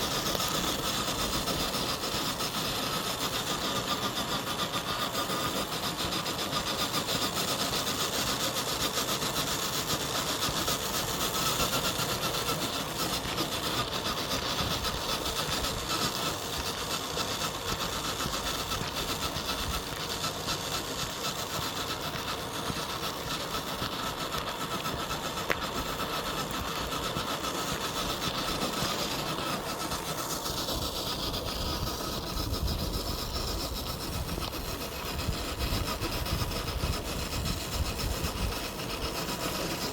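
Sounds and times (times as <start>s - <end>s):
toy car motor whirring: 0.0s - 39.9s.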